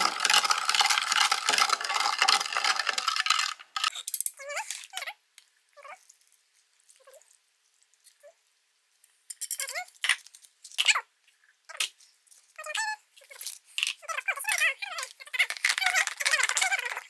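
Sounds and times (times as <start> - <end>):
spoon stirring liquid in pot: 0.0 - 3.9.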